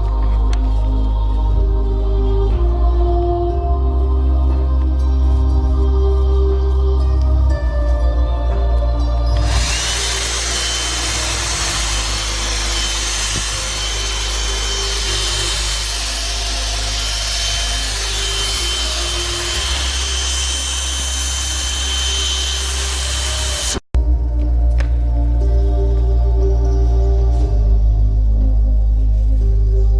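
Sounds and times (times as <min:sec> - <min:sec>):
vacuum cleaner running: 0:09.3 - 0:23.8.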